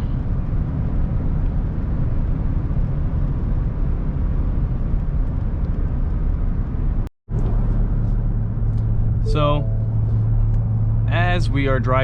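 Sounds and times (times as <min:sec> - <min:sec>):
truck engine and exhaust rumble: 0:00.0 - 0:12.0.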